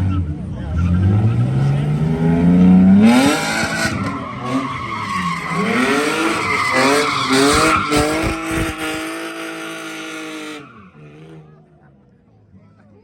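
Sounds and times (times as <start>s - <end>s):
car engine revving: 0.0s - 11.8s
tyres squealing on pavement: 3.2s - 11.4s.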